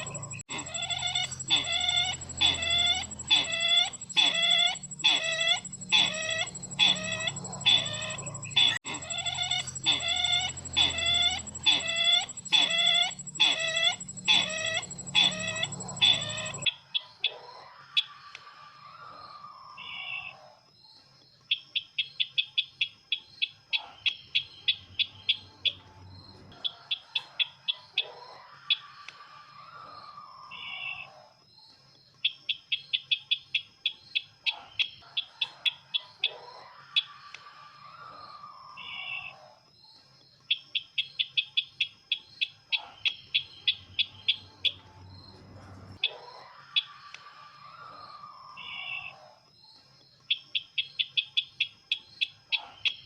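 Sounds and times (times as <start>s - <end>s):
bird calling curving calls: 0.0s - 16.7s.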